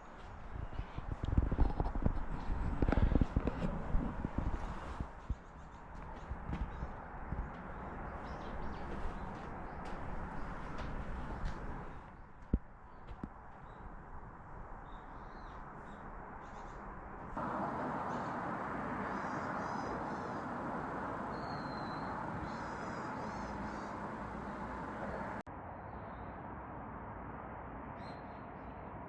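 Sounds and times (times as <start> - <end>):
rushing outdoor background: 0.0 - 25.8
small birds chirping: 4.4 - 12.3, 14.8 - 25.4
bird whistle: 21.2 - 25.2.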